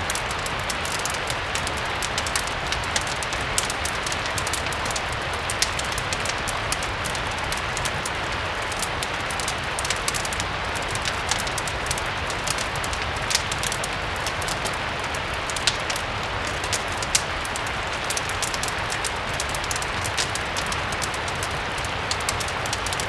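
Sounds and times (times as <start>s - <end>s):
steady rain hiss: 0.0s - 23.0s
wood fire crackling and popping: 0.0s - 23.0s.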